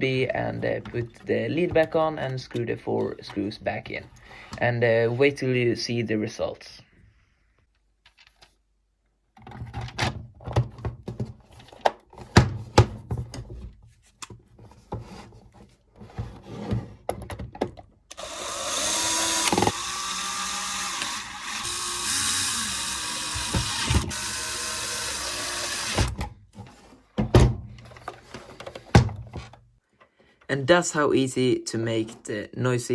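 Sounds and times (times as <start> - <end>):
plastic parts clicking and knocking: 17.0 - 26.4
small electric motor whirring: 18.1 - 26.1.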